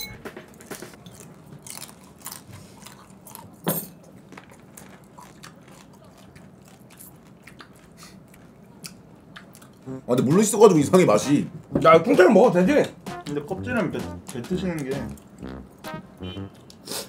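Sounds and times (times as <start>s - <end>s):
chewing and crunching crab shell: 1.0s - 9.9s.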